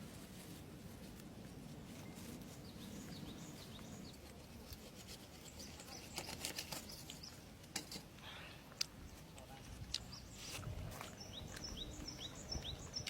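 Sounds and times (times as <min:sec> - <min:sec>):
faint birds chirping: 0:00.8 - 0:13.0
rustling and clicking: 0:02.0 - 0:08.1.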